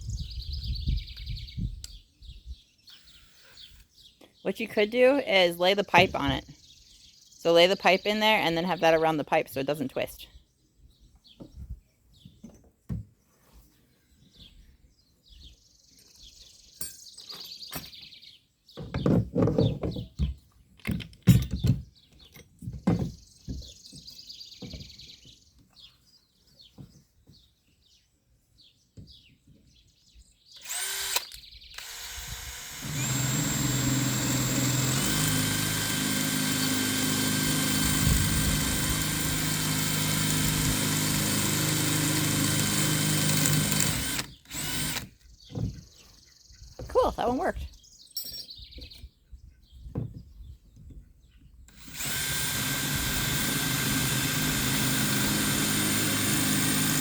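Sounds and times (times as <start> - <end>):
electric drill drilling steel: 30.6 - 45.1, 51.7 - 57.0.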